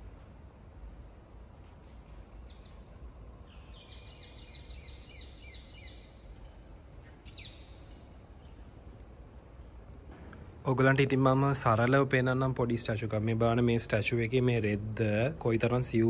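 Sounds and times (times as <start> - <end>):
low steady background rumble: 0.0 - 16.0
bird chirping: 1.8 - 9.0.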